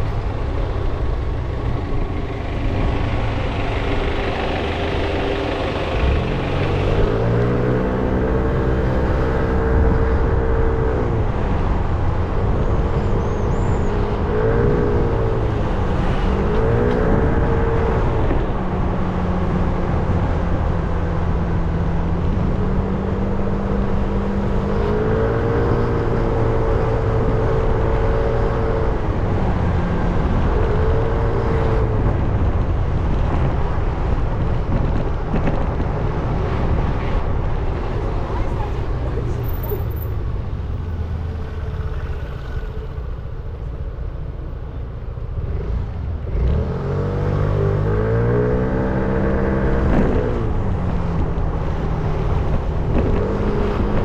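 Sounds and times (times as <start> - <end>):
riding wind and road noise: 0.0 - 54.0.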